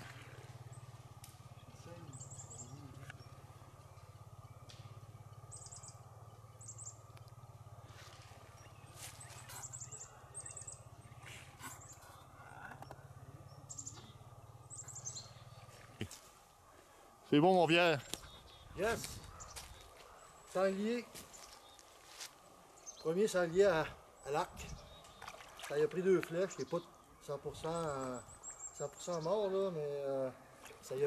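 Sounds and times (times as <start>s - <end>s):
steady low hum: 0.0s - 25.7s
small bird chirping: 0.6s - 16.2s, 18.0s - 22.2s.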